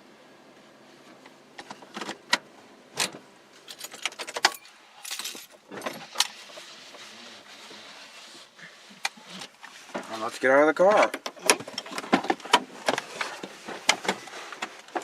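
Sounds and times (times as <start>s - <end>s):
car keys jangling: 3.7s - 6.2s.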